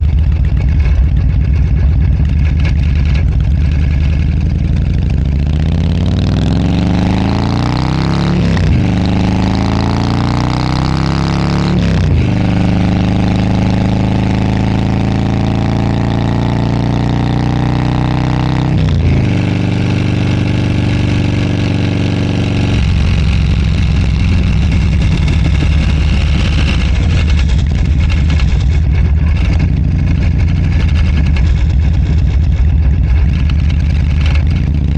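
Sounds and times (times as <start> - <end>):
motorcycle engine accelerating: 0.0 - 34.9
wind noise: 22.6 - 34.9.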